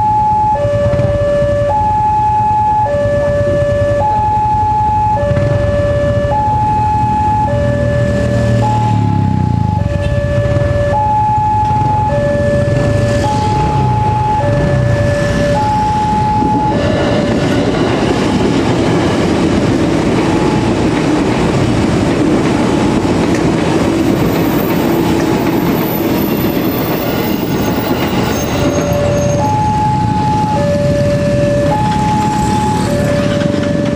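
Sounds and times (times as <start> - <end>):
two-tone crossing alarm: 0.0 - 23.3, 23.9 - 33.9
train wheels rumbling on rails: 11.6 - 33.9.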